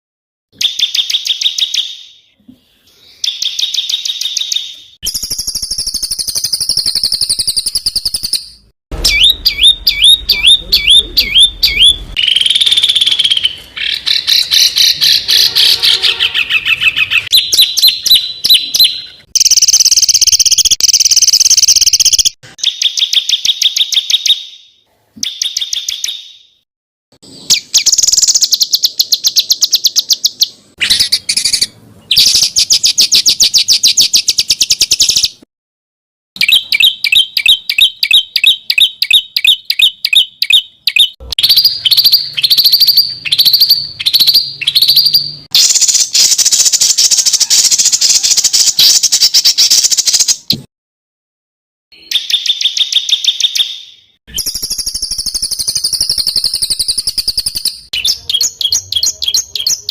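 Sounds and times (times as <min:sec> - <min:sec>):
songbirds harsh rapid calls: 0:27.4 - 0:35.3, 0:36.4 - 0:50.4.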